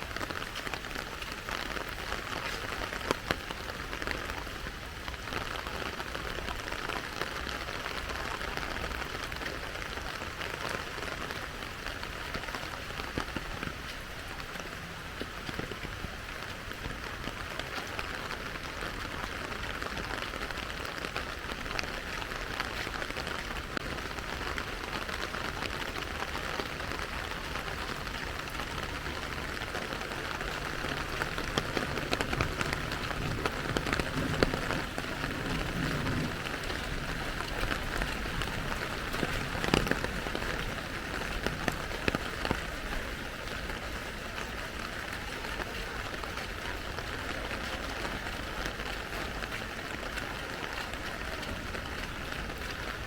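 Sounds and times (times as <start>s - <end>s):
rain falling and splashing: 0.0s - 53.0s.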